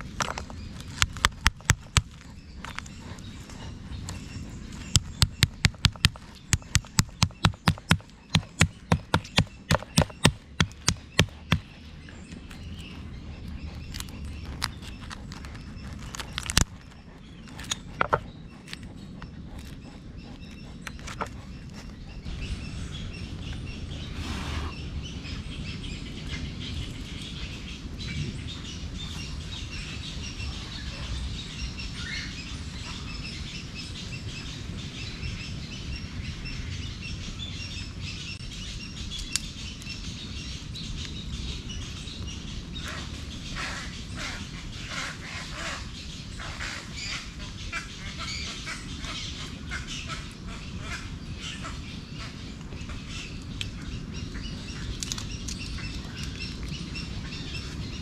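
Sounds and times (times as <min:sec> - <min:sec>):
birds chirping: 0:00.0 - 0:58.0
low outdoor rumble: 0:00.0 - 0:58.0
sharp clicks and knocks: 0:17.6 - 0:18.8.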